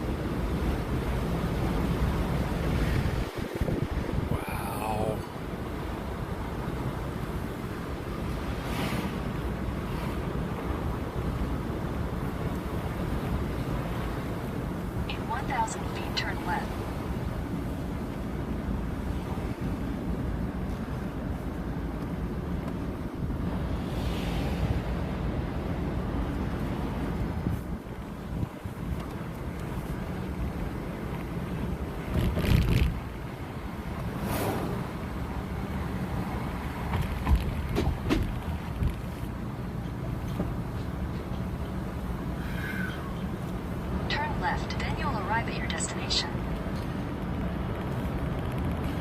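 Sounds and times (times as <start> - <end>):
road and wind noise in car: 0.0 - 49.0
dashboard thumps and rattles: 36.9 - 39.0.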